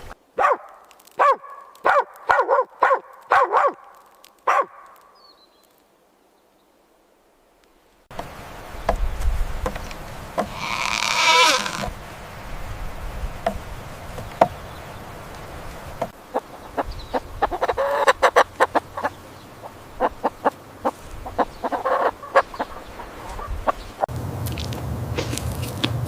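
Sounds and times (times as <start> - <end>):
chickens clucking: 15.9 - 24.1.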